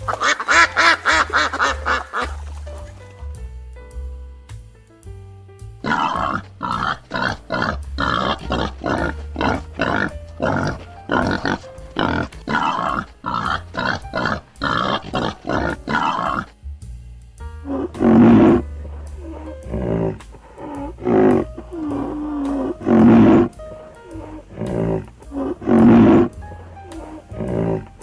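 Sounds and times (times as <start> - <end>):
boar grunting: 5.8 - 16.6, 17.7 - 28.0.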